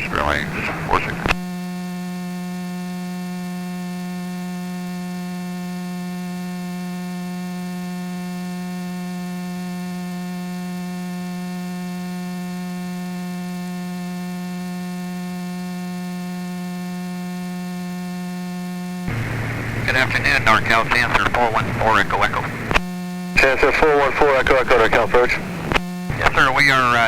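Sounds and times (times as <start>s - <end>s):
steady electrical hum: 7.7s - 27.0s.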